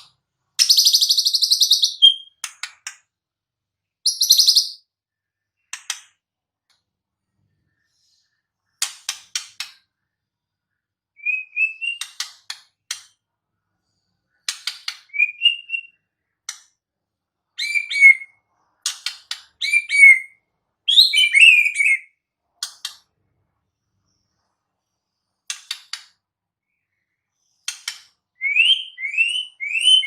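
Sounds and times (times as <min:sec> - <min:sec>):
songbird clicking and whistling: 0:00.6 - 0:03.0, 0:04.0 - 0:04.8, 0:11.2 - 0:13.1, 0:14.4 - 0:16.7.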